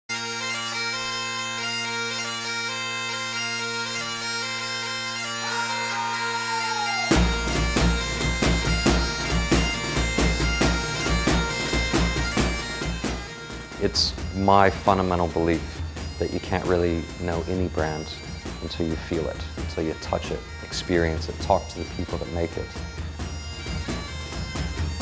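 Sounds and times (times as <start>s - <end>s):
bagpipe music: 0.1s - 25.0s
heavy drum beat: 6.8s - 22.0s.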